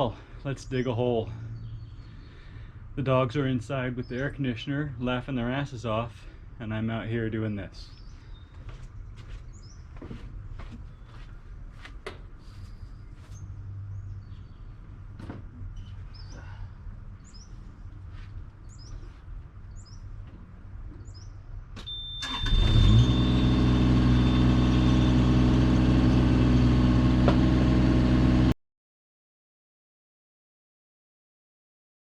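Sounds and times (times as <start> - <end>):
birds chirping: 0.0 - 4.9, 5.9 - 21.6
digging machine engine running: 22.2 - 28.6.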